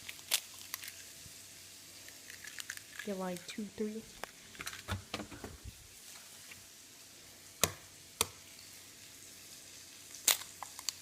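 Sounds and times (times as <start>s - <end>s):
eggs clicking and clattering: 2.0s - 5.6s.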